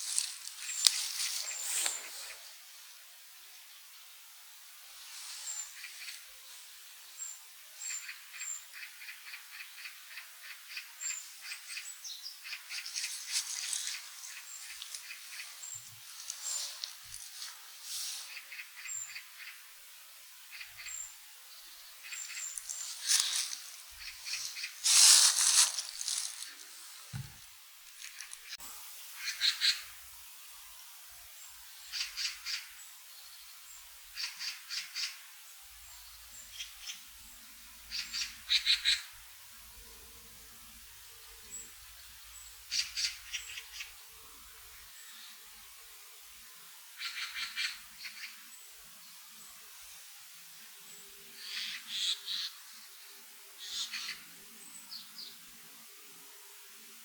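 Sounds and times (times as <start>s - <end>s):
small birds calling: 0.0s - 2.6s, 5.3s - 28.6s, 29.2s - 30.0s, 31.4s - 39.2s, 41.4s - 44.0s, 46.9s - 48.6s, 51.4s - 55.4s
soft low thump: 27.1s - 27.4s.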